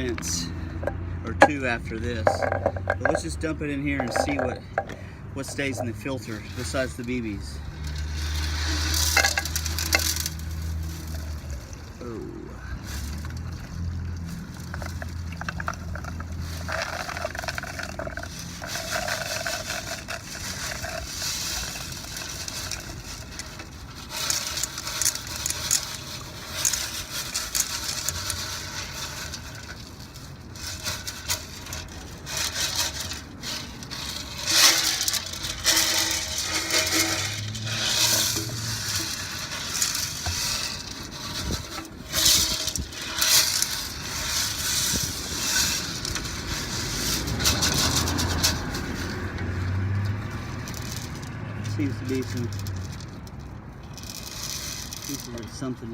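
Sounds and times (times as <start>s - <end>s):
metal balls rattling in metal tank: 0.0s - 55.9s.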